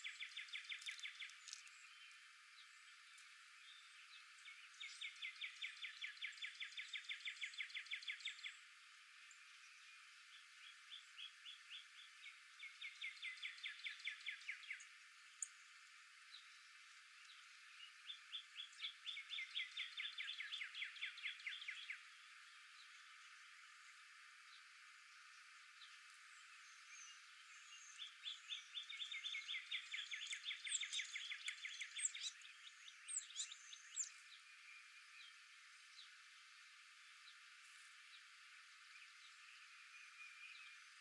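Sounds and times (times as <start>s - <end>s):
faint outdoor hiss: 0.0s - 41.0s
songbird trilling: 26.7s - 34.2s.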